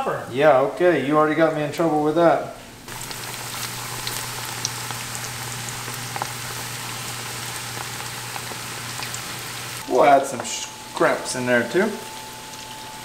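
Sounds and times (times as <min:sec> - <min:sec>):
food frying in oil: 0:02.9 - 0:13.0.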